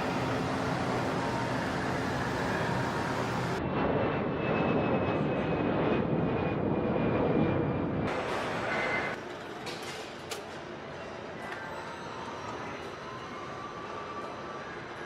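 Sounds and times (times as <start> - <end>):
aircraft engine droning: 0.0 - 9.4.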